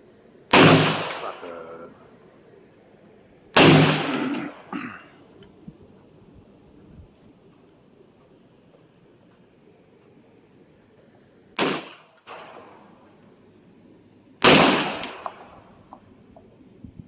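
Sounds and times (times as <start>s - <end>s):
pistol shots: 0.5s - 1.7s, 3.6s - 4.7s, 11.6s - 13.0s, 14.4s - 15.8s
faint gunshot report: 0.5s - 1.8s, 3.6s - 4.7s, 11.6s - 13.0s, 14.4s - 15.7s.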